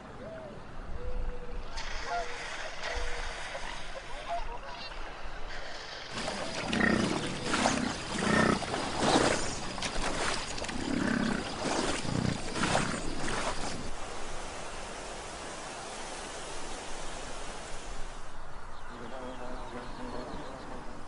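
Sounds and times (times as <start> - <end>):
wolves growling and snarling: 6.2 - 9.6, 10.6 - 13.9.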